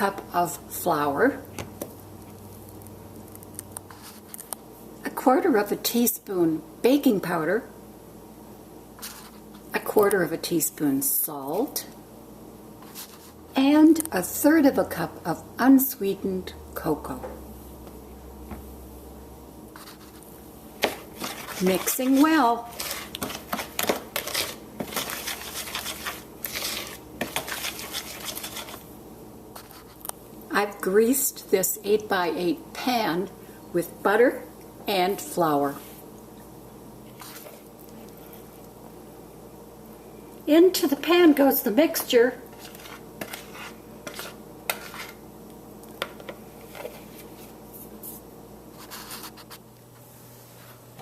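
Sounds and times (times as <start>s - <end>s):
utensil stirring batter in bowl: 19.8s - 28.9s, 41.9s - 45.2s, 46.0s - 48.2s.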